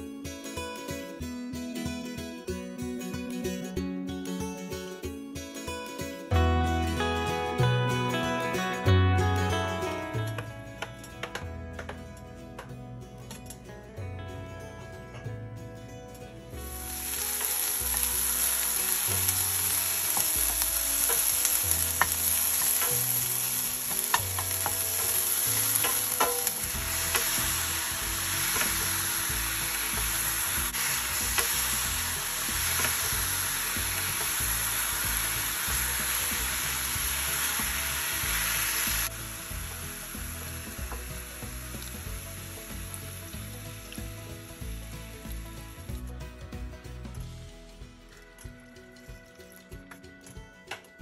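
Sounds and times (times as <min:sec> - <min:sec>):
chicken sizzling in a pan: 0:16.5 - 0:46.0.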